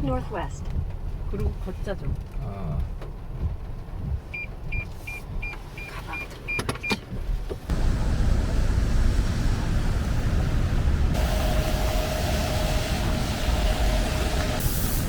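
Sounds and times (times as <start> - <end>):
low rumbling rush: 7.7 - 15.0.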